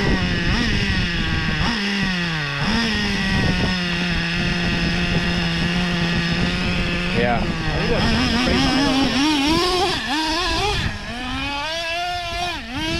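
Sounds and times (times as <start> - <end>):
small rc car engine buzzing: 0.0 - 12.9.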